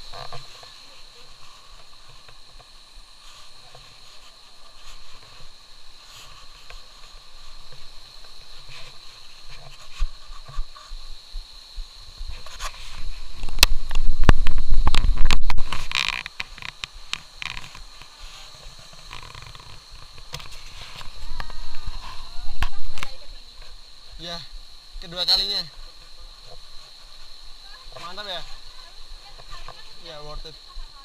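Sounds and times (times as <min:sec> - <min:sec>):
wind rumble on microphone: 0:09.4 - 0:16.7, 0:19.1 - 0:25.0.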